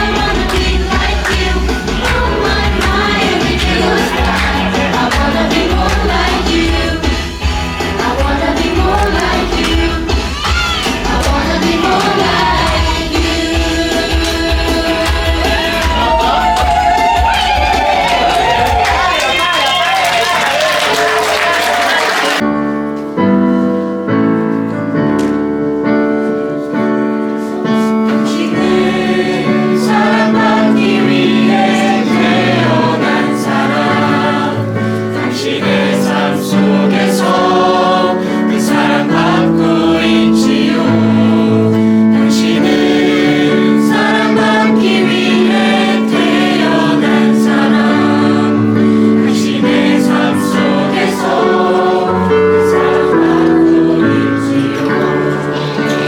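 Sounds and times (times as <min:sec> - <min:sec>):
instrumental accompaniment: 0:00.0 - 0:19.2, 0:22.4 - 0:56.0
choir singing gospel song: 0:00.0 - 0:22.4, 0:27.6 - 0:56.0.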